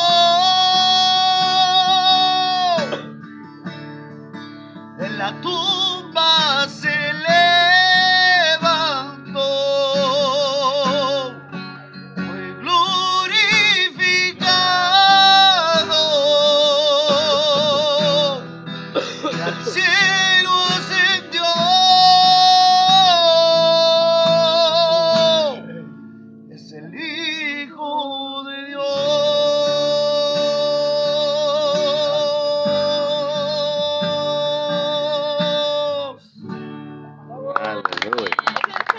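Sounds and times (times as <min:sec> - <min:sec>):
guitar accompaniment: 0:00.0 - 0:38.9
person singing with vibrato: 0:12.2 - 0:26.0.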